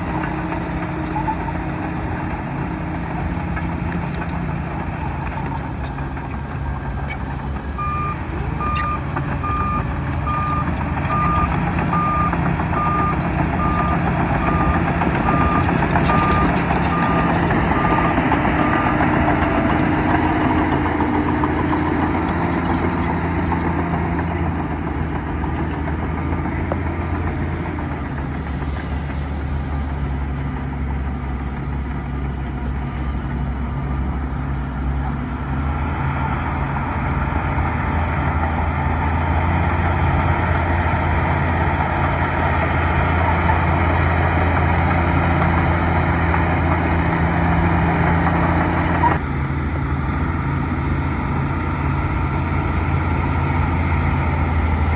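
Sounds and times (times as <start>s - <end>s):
bulldozer engine under load: 0.0s - 54.9s
reversing alarm beeping: 7.8s - 19.0s.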